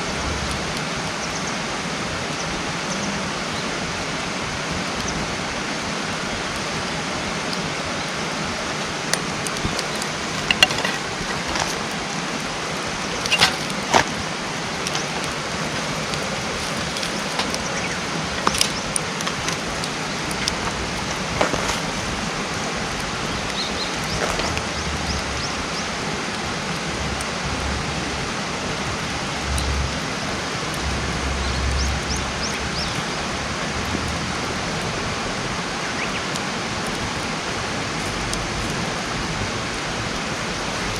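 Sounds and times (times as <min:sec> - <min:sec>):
campfire hissing and crackling: 0:00.0 - 0:40.9
low rumbles: 0:09.4 - 0:26.0.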